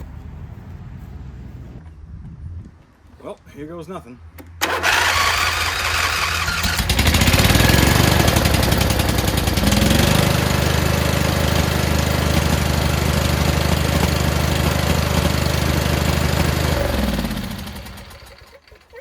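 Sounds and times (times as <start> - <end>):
riding mower engine starting: 4.6 - 19.0.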